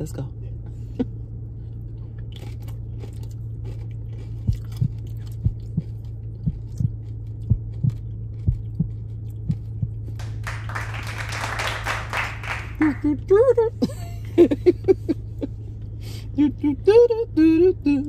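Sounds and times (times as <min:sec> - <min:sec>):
steady low hum: 0:00.0 - 0:18.0
person chewing food: 0:01.6 - 0:10.2.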